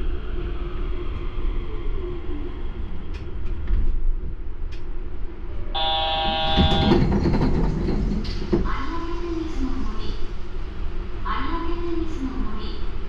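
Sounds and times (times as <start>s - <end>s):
train low rumble: 0.0s - 13.0s
electronic chime tone: 5.8s - 6.9s.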